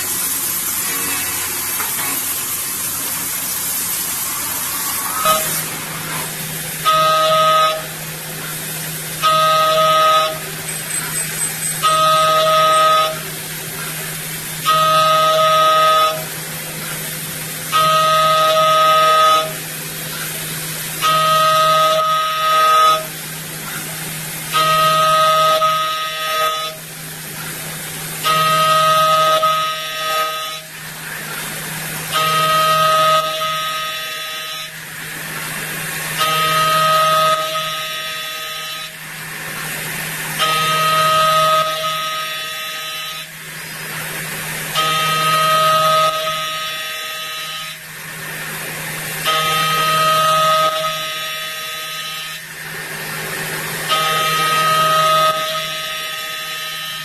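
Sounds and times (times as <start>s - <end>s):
cutter whining: 0.0s - 14.0s
low machine hum: 0.0s - 57.0s.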